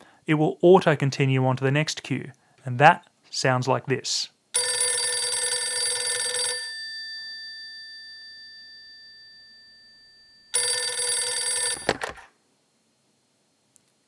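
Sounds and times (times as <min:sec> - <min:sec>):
telephone ringing: 0:04.6 - 0:12.3
telephone receiver picked up: 0:10.6 - 0:12.3.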